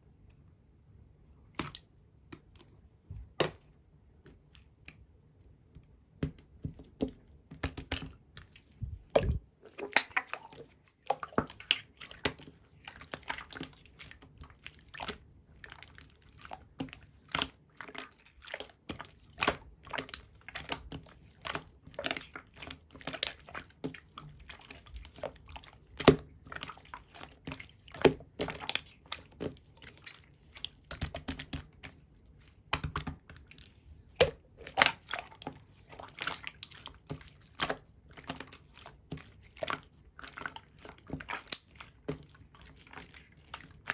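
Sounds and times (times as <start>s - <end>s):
slime squished by hand: 7.6s - 43.9s
sticky clicks and bubble pops: 8.8s - 9.4s.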